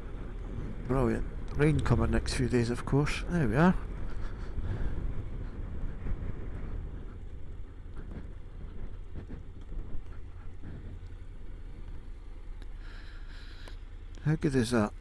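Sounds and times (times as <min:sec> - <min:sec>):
wind buffeting microphone: 0:00.0 - 0:12.8
motorcycle engine rumble: 0:00.0 - 0:15.0.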